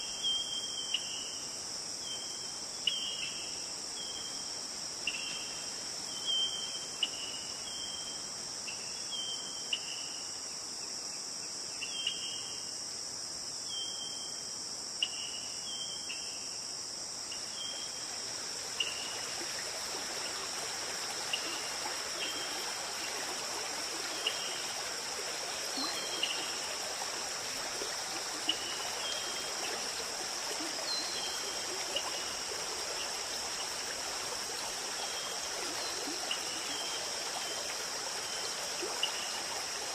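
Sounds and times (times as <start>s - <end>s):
stream flowing: 17.1s - 39.9s.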